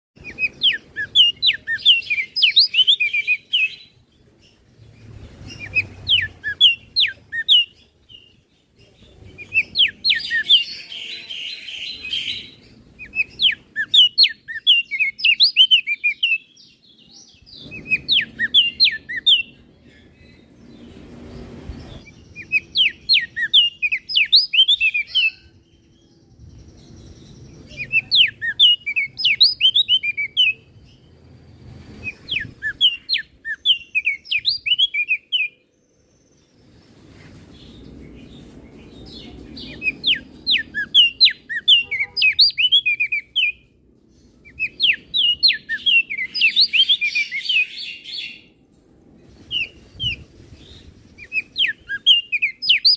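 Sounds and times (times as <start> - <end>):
bird singing rapid chirps: 0.2 - 48.6, 49.4 - 52.9.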